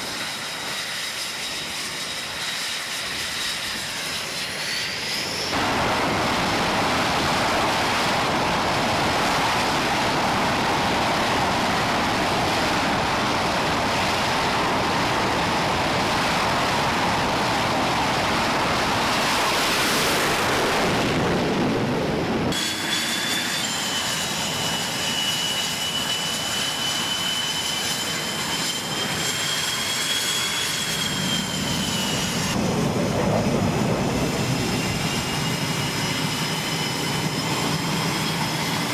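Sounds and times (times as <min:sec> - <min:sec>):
jet engine roar: 0:00.0 - 0:38.9
turbine whine: 0:00.0 - 0:38.9.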